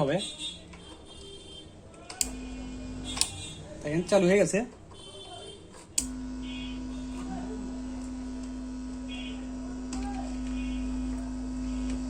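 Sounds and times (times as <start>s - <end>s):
speaker mains hum: 2.1s - 5.1s, 6.0s - 12.0s.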